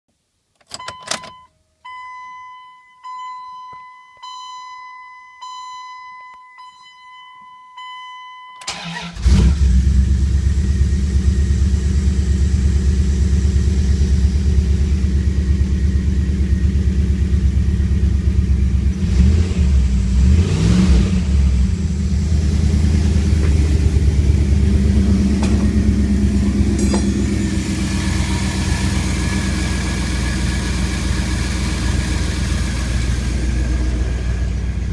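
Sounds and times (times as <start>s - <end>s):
dashboard warning chime: 0.6s - 9.1s, 23.3s - 29.4s
engine cranking and idling: 8.6s - 34.9s.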